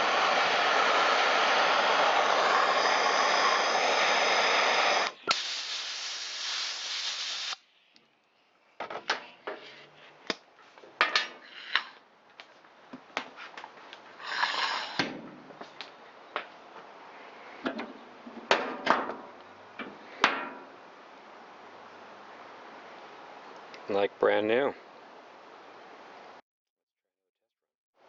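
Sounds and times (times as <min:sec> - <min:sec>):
blowtorch flame hissing: 0:00.0 - 0:07.6, 0:14.2 - 0:15.1.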